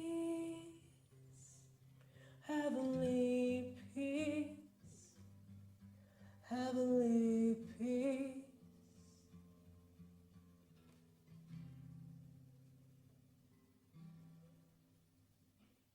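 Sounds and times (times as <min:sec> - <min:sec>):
woman singing with vibrato: 0:00.0 - 0:01.6, 0:02.4 - 0:05.1, 0:06.4 - 0:08.6
acoustic guitar chords: 0:00.0 - 0:15.1.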